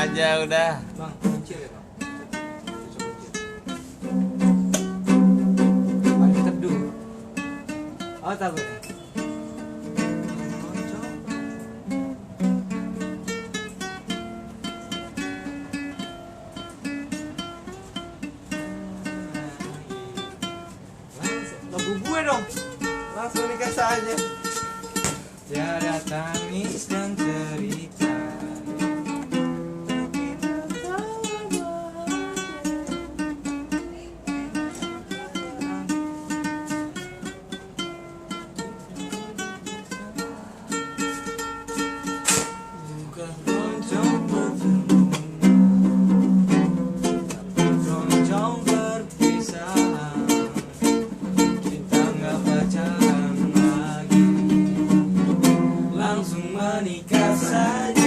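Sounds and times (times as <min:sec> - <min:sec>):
strummed small stringed instrument: 0:00.0 - 0:58.0
person singing: 0:30.2 - 0:33.2, 0:42.8 - 0:45.2, 0:47.2 - 0:58.0.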